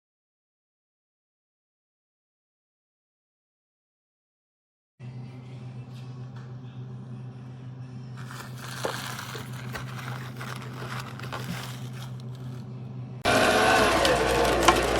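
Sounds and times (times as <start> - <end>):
rough grinding with clicks: 8.2 - 12.7, 13.8 - 14.9
meat grinder motor hum: 8.2 - 14.9.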